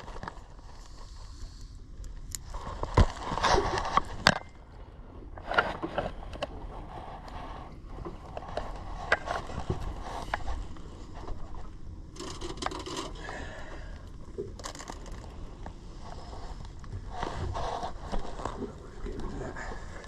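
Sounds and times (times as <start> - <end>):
fishing gear scraping and clattering: 5.4 - 13.6, 14.5 - 15.4.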